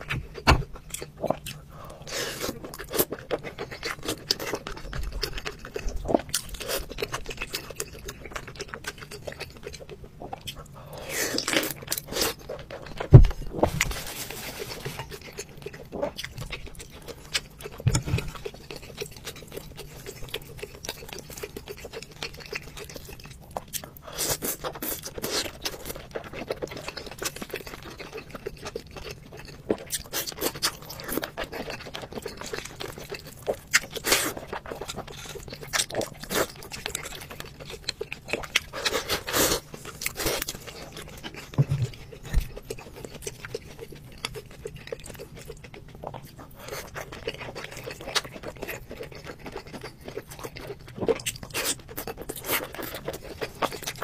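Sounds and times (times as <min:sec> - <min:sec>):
chewing and slurping: 0:00.0 - 0:54.0
heavy thump: 0:13.1 - 0:13.9, 0:41.6 - 0:41.9.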